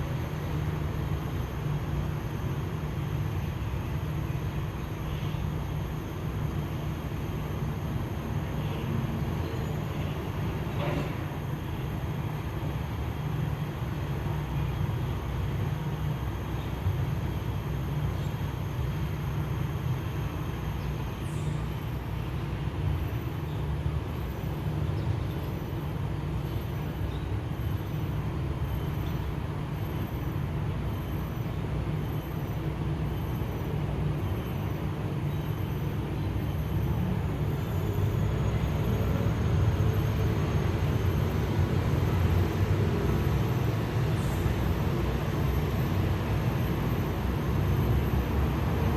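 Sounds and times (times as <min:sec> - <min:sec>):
low rumble of road vehicles: 0:00.0 - 0:48.9.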